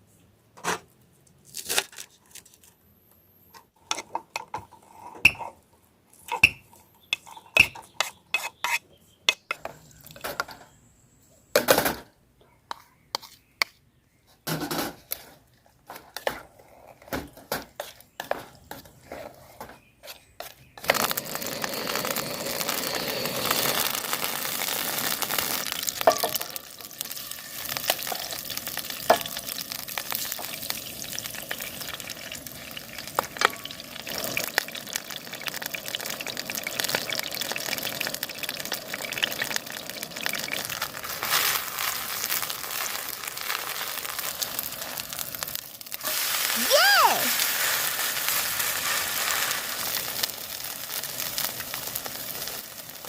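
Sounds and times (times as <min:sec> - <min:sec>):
batter sizzling in oil: 0:20.4 - 0:53.0.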